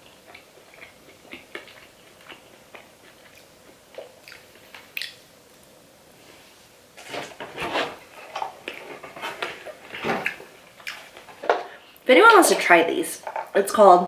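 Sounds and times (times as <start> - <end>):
wet chewing clicks: 0.0 - 5.2.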